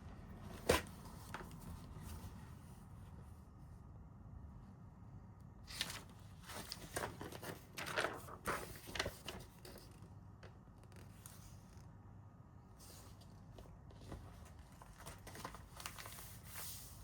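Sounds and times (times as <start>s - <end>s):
rustling and scraping handling: 12.8s - 17.0s.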